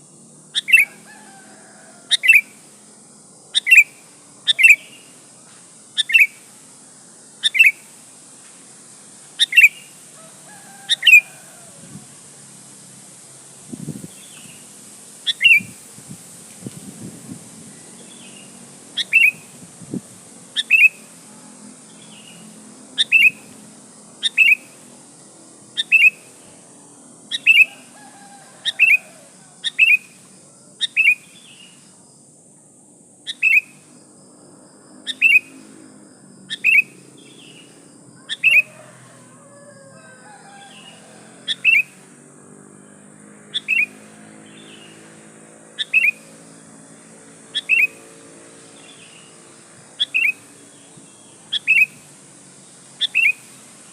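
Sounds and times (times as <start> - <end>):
bird sharp falling calls: 43.5 - 45.0, 45.8 - 46.3, 47.6 - 48.1, 50.0 - 52.1, 53.0 - 53.5.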